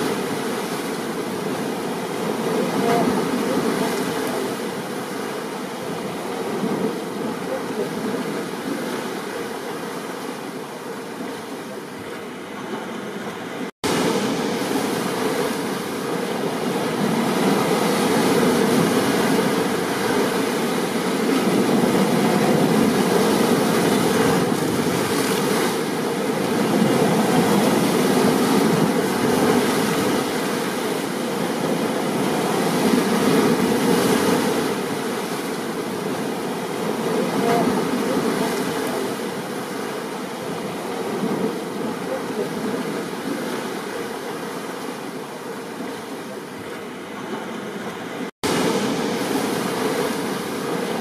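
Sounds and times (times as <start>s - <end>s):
stormy sea surf: 0.0s - 51.0s.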